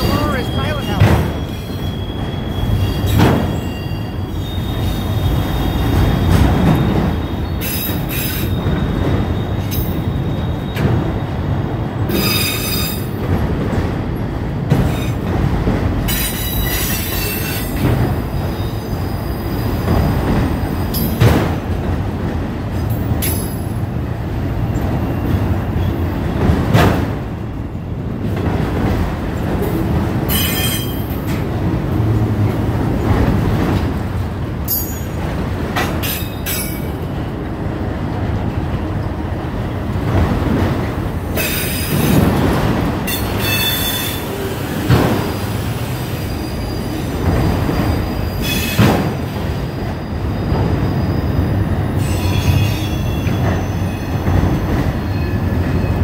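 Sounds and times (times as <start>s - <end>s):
high wheel squeal: 0.0s - 10.9s, 43.1s - 44.6s, 45.6s - 48.8s, 50.0s - 56.0s
train wheels rumbling on rails: 0.0s - 56.0s.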